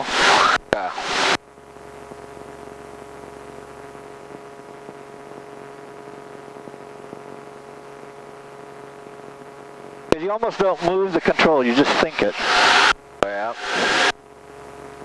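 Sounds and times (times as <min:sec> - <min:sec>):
intercom hiss with hum tones: 0:00.0 - 0:15.0
airplane engine drone: 0:10.1 - 0:14.2.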